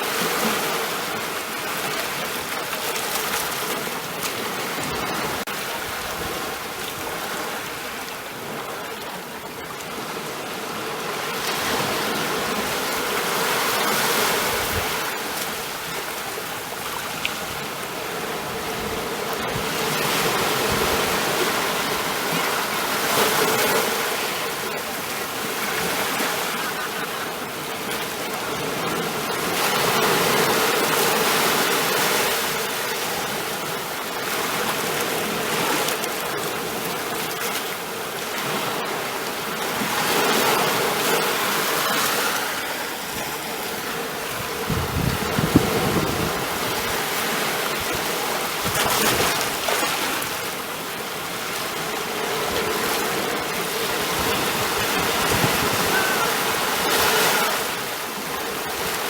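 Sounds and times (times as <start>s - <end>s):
ocean surf washing in: 37.0s - 59.0s.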